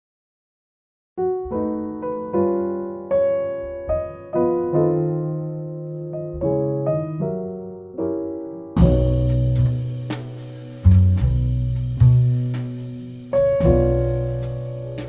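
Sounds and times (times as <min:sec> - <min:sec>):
slow solo piano melody: 0:01.2 - 0:15.0
strummed guitar and bass music: 0:08.8 - 0:15.0.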